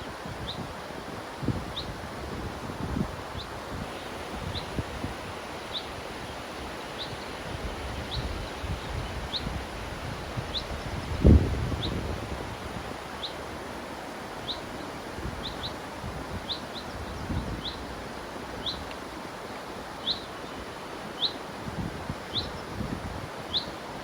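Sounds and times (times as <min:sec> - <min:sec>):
river water rushing: 0:00.0 - 0:11.4, 0:12.1 - 0:24.0
wind rumble on microphone: 0:00.0 - 0:13.8, 0:14.4 - 0:19.0, 0:21.5 - 0:24.0
songbird chirping: 0:05.6 - 0:07.4, 0:18.6 - 0:21.4.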